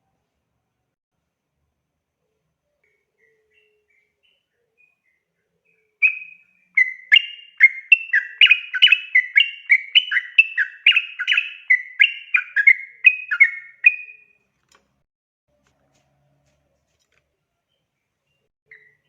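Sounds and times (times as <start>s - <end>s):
bird singing bubbly whistles: 6.0s - 14.3s.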